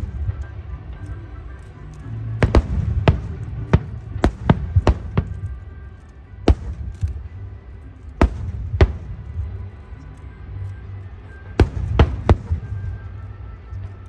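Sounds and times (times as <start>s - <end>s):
fireworks bursting: 0.0s - 1.5s, 2.2s - 7.4s, 8.0s - 9.6s, 11.4s - 13.5s
continuous low rumble: 0.0s - 14.0s.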